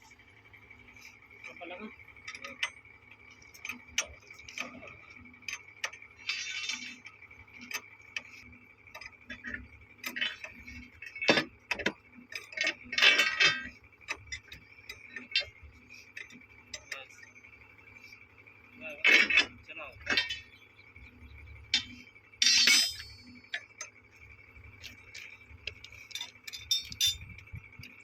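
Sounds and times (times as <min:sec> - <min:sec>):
rattling scrape: 0:06.2 - 0:07.1
tools clicking on metal: 0:24.8 - 0:28.0.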